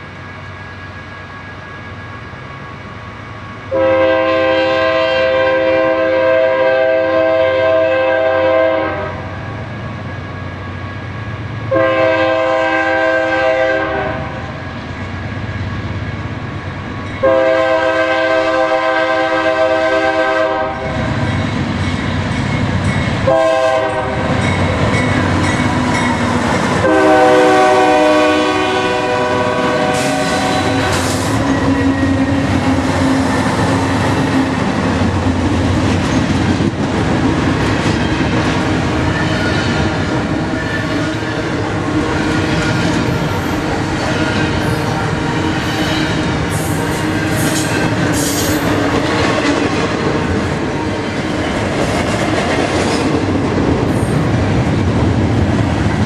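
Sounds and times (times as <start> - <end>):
train rumbling past: 0.0 - 56.0
locomotive air horn: 3.7 - 9.3, 11.7 - 14.5, 17.2 - 21.0, 23.2 - 24.4, 26.8 - 34.3
wheels clacking on rails: 19.9 - 56.0.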